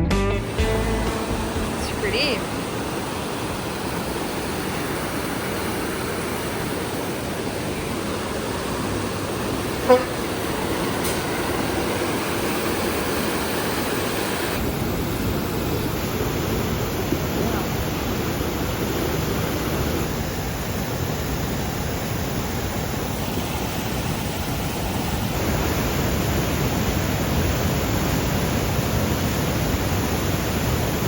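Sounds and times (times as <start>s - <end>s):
steady rushing noise: 0.4s - 31.0s
short pitched toot: 9.8s - 10.3s.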